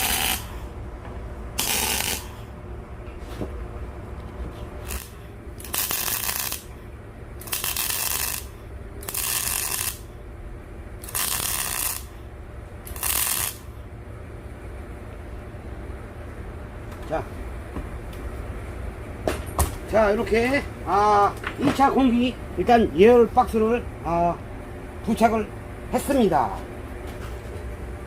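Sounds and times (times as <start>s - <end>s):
arc welding hiss: 0.0s - 0.6s, 1.6s - 2.4s, 4.8s - 6.8s, 7.4s - 10.1s, 11.0s - 12.2s, 12.9s - 13.7s
steady low hum: 0.0s - 28.0s.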